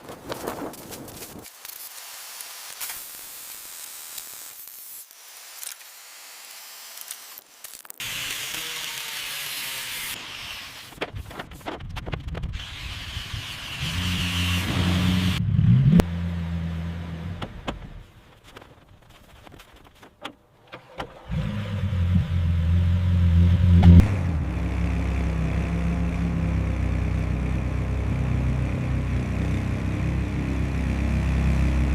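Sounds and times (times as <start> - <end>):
spray hiss: 1.5 - 7.4
car engine revving: 12.7 - 18.0, 21.2 - 31.9.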